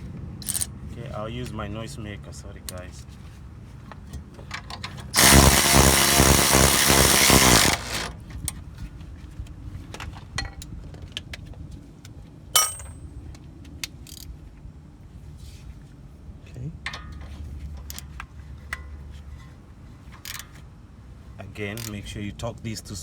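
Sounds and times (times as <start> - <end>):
tools clinking: 0.4 - 0.7, 12.6 - 13.1
impact wrench hammering: 5.2 - 8.1, 12.6 - 13.0.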